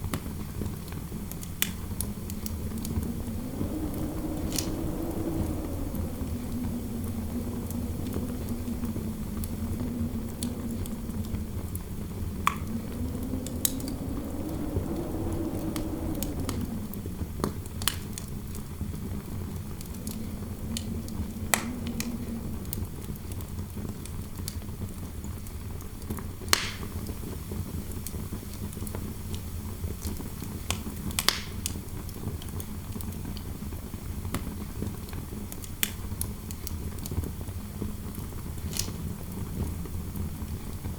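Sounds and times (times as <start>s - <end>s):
fireplace crackling: 0.6s - 24.7s
wind howling: 0.6s - 24.9s.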